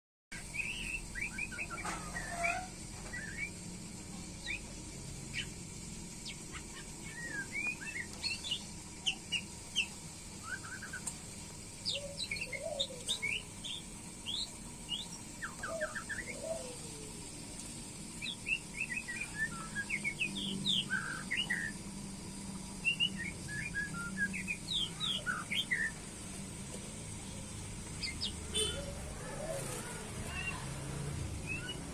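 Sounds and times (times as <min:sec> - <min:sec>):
bird whistling calls: 0:00.4 - 0:03.6, 0:06.5 - 0:11.1, 0:11.9 - 0:16.9, 0:18.2 - 0:21.8, 0:22.8 - 0:26.0, 0:28.0 - 0:30.6, 0:31.4 - 0:31.9.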